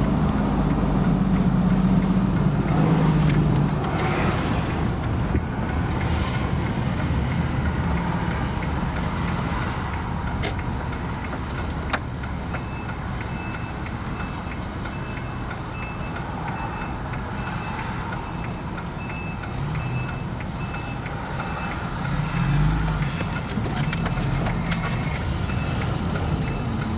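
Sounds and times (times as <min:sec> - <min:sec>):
fire engine running: 0:00.0 - 0:26.9
reversing alarm beeping: 0:10.9 - 0:23.0, 0:23.8 - 0:26.9.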